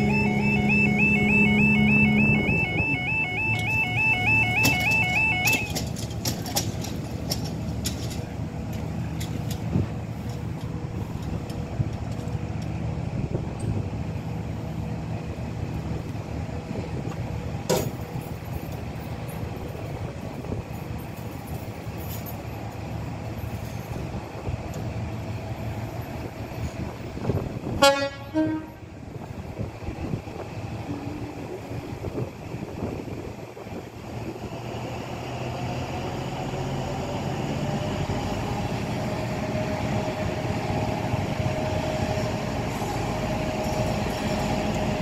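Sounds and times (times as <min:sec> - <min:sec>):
diesel train engine humming: 0:00.0 - 0:45.0
train horn blast: 0:27.7 - 0:29.0.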